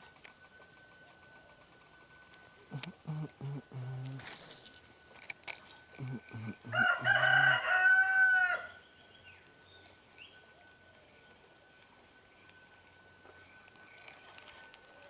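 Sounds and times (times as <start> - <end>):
rooster crowing: 6.1 - 8.8.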